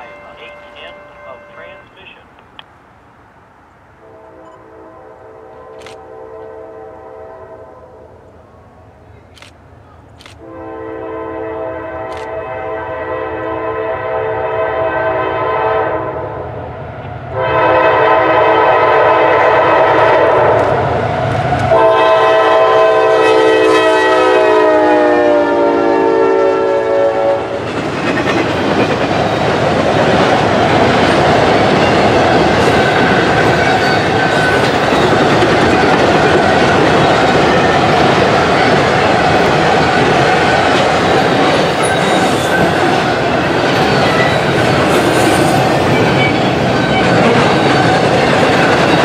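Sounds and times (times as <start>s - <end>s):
locomotive air horn blasts: 4.0s - 8.1s, 10.4s - 16.2s, 17.3s - 20.7s, 21.7s - 27.6s
train wheels rumbling and clattering: 19.4s - 21.8s, 27.4s - 49.0s.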